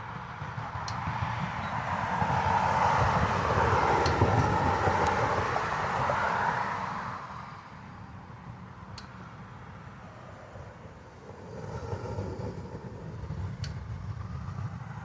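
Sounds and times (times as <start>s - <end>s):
vehicle passing by: 0.0s - 7.9s, 9.7s - 15.0s.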